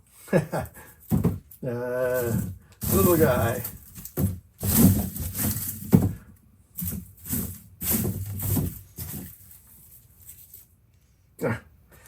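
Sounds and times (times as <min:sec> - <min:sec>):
garlic bulbs rustling: 0:02.0 - 0:06.2.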